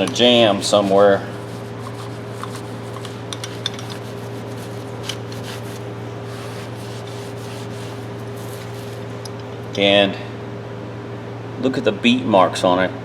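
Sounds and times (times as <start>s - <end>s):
room hum: 0.0s - 12.0s
metal wrenches clinking: 1.8s - 7.2s.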